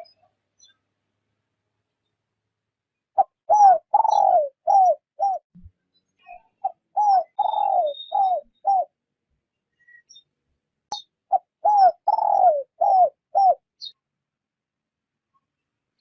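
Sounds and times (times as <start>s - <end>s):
dove cooing: 3.2s - 5.4s, 6.6s - 8.9s, 11.3s - 13.6s.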